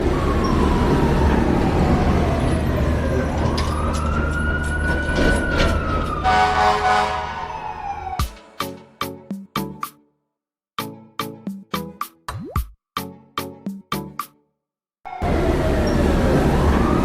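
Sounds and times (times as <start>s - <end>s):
fire truck siren wailing: 0.0s - 8.4s, 15.1s - 17.0s.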